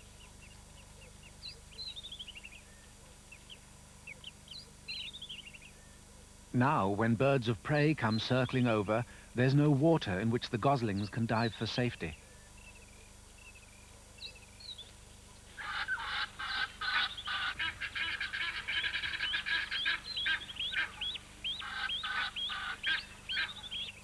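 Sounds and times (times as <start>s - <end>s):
geese honking: 15.5s - 24.0s.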